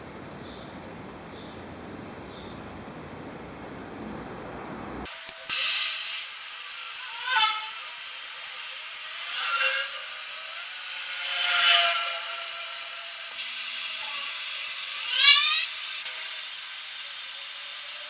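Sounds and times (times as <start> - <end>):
power tool motor running: 5.1 - 18.0.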